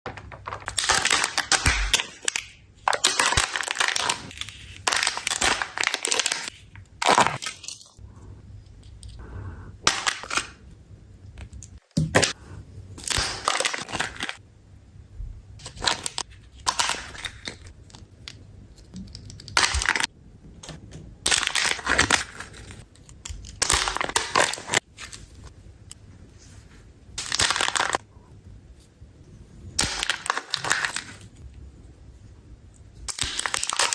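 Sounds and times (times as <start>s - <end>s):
packaging crinkling and crackling: 0.1s - 8.0s, 33.1s - 33.9s.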